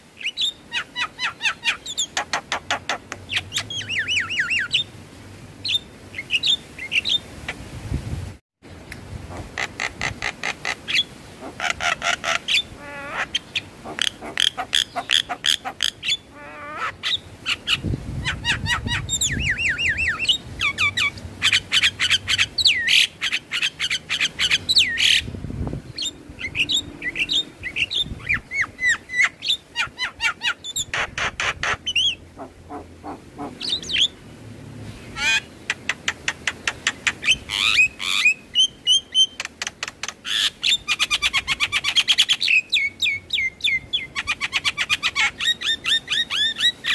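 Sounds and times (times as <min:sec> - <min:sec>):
bird clicking chatter: 0:35.7 - 0:37.3, 0:39.2 - 0:40.4.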